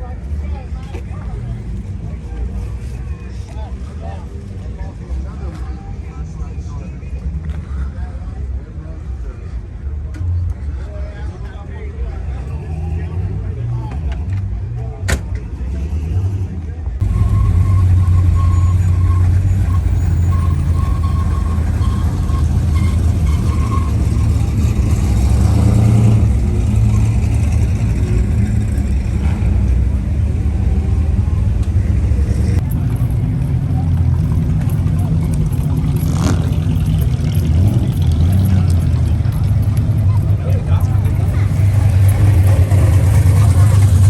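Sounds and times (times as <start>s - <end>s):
vehicle engine rumbling: 0.0s - 44.0s
reversing beeper short beeps: 17.0s - 24.4s.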